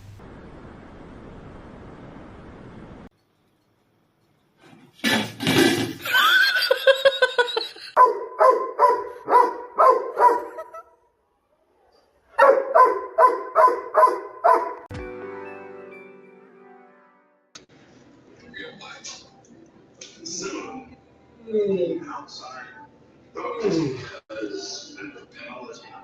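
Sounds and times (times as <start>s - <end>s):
dog barking: 8.0s - 10.9s, 12.4s - 14.9s.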